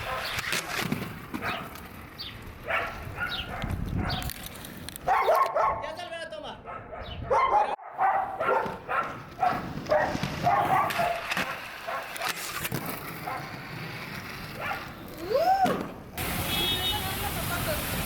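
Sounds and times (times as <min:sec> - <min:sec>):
dog yipping: 0:01.4 - 0:01.7, 0:02.6 - 0:04.3, 0:05.1 - 0:05.8, 0:06.7 - 0:12.3, 0:14.6 - 0:14.9.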